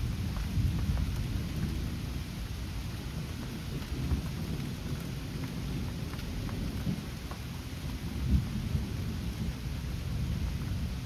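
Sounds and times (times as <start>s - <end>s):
raindrop ticks: 0.0s - 9.6s
steady rain: 0.0s - 11.0s
thunder rumbling: 7.9s - 11.0s.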